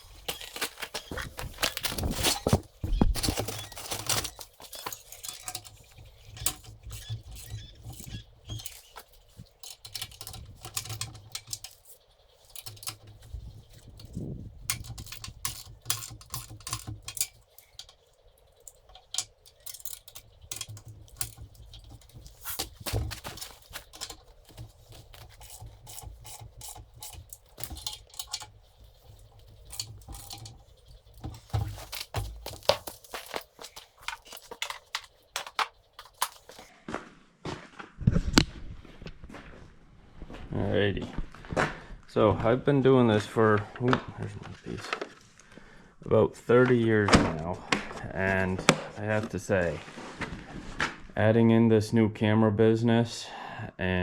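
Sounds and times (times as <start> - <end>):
tools and metal hardware rattling: 0.0 - 36.7.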